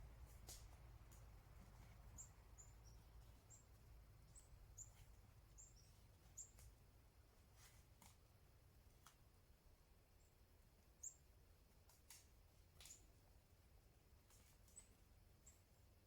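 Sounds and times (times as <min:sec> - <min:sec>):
bird chirping: 0:02.1 - 0:03.7, 0:04.3 - 0:05.0, 0:05.6 - 0:06.6.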